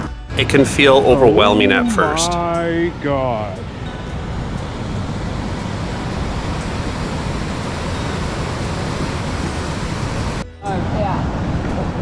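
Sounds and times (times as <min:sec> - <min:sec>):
roar of tidal rapids: 0:01.4 - 0:10.4.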